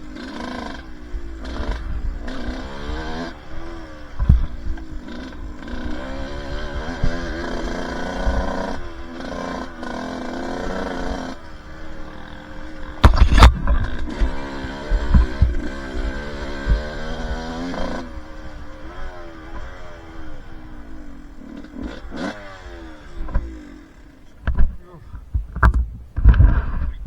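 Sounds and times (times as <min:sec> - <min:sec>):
two-stroke dirt bike engine: 0:00.0 - 0:27.0
loud thump: 0:13.0 - 0:14.4.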